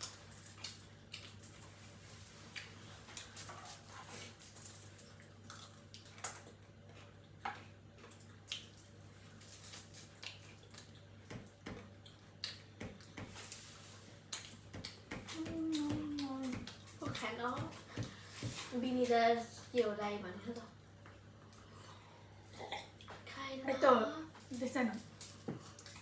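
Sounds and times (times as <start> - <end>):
chewing and mouth smacks: 0.0 - 17.3, 25.0 - 26.0
low steady hum: 0.0 - 26.0.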